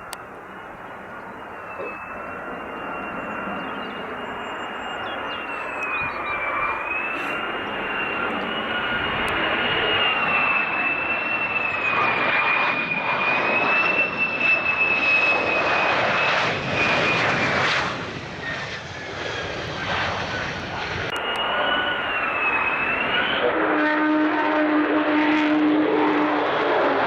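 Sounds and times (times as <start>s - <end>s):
fighter jet engine whine: 0.0s - 27.0s.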